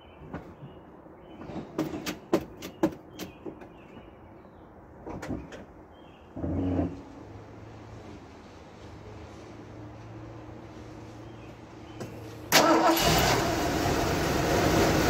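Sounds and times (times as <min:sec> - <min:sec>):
car engine idling: 0:12.6 - 0:15.0.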